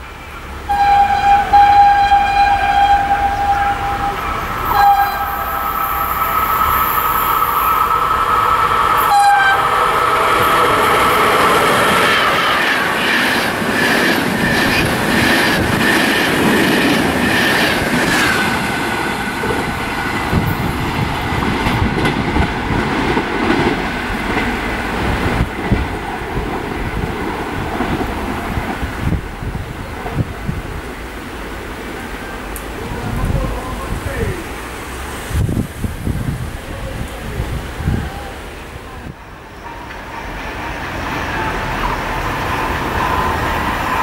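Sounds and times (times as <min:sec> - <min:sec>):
train horn: 0:00.2 - 0:07.7, 0:09.0 - 0:11.4
high wheel squeal: 0:00.2 - 0:13.3.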